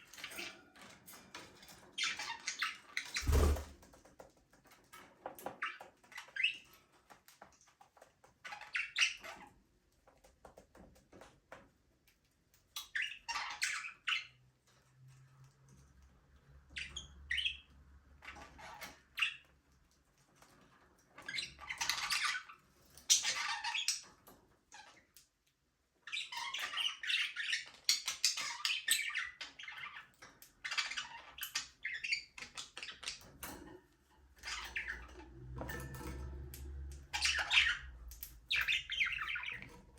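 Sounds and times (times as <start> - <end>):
budgerigars chattering and chirping: 37.1 - 39.7.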